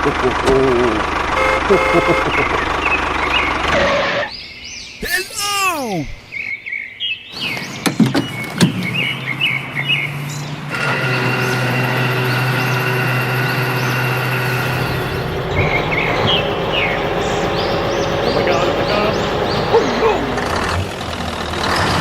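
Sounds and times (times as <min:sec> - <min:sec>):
truck engine humming: 0:00.0 - 0:04.2, 0:08.9 - 0:22.0
birds chirping: 0:01.1 - 0:21.4.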